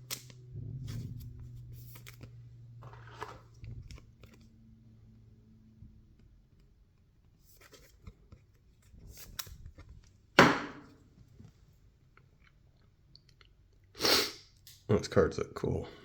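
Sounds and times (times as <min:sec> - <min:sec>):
trading cards shuffled by hand: 0:00.1 - 0:04.5.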